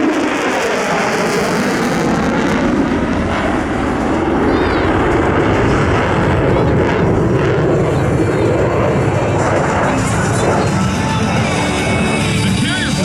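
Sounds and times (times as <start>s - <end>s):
jet engine roaring: 0.0s - 13.0s.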